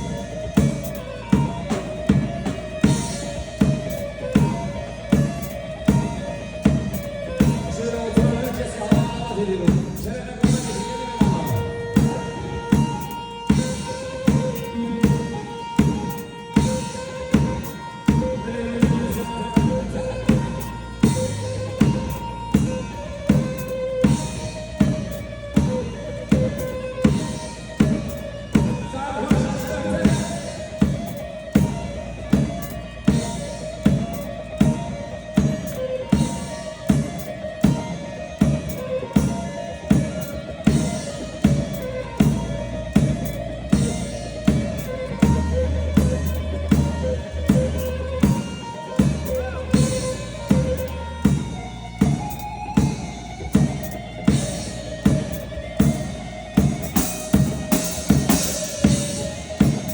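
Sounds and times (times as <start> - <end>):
drum kit beat: 0.0 - 59.9
sustained instrumental melody: 0.0 - 59.9.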